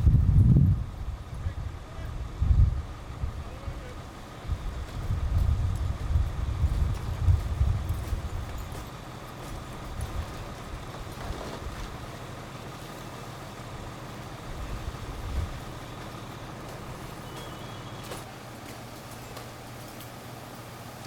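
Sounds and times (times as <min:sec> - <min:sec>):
wind buffeting microphone: 0:00.0 - 0:08.9, 0:14.4 - 0:16.0
fire engine running: 0:00.0 - 0:21.0.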